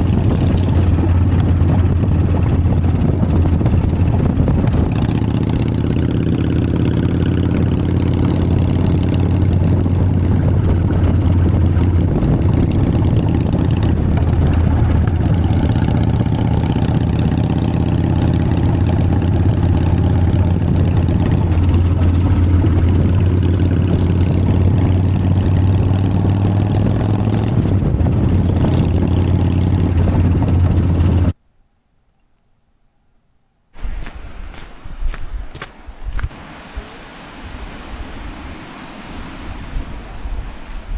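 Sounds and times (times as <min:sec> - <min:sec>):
motorcycle engine running: 0:00.0 - 0:31.4.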